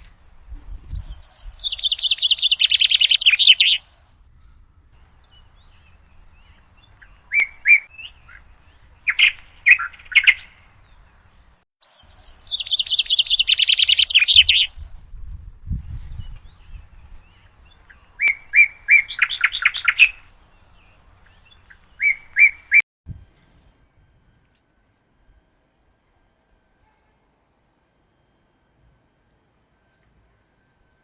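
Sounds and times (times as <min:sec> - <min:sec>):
songbird singing rapid phrase: 0:01.1 - 0:04.0, 0:05.1 - 0:14.8, 0:16.2 - 0:22.8.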